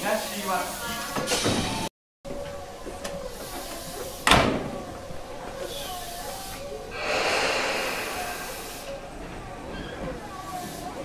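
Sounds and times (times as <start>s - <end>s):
compressed air hiss: 6.0s - 9.3s.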